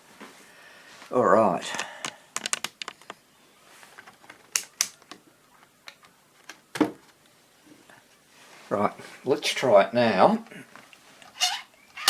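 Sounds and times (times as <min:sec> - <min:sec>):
small sharp clicks: 0:04.5 - 0:05.2.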